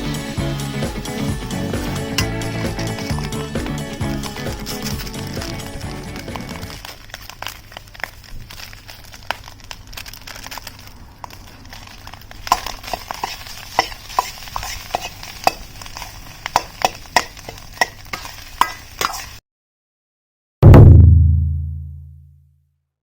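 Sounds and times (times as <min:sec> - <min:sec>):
wood fire crackling and popping: 0:01.0 - 0:19.2.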